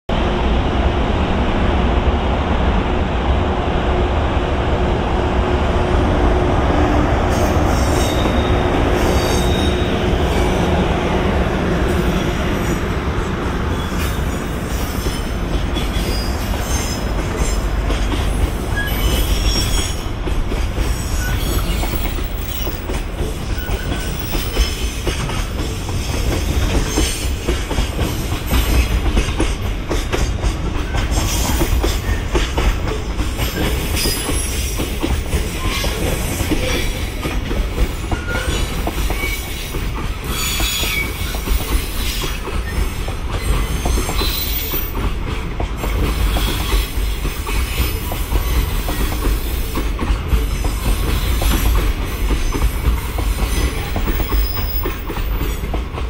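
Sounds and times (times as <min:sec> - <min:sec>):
freight train wheels rumbling: 0:00.1 - 0:56.0
high-pitched wheel squeals: 0:18.7 - 0:20.1, 0:21.1 - 0:22.8, 0:40.2 - 0:44.9.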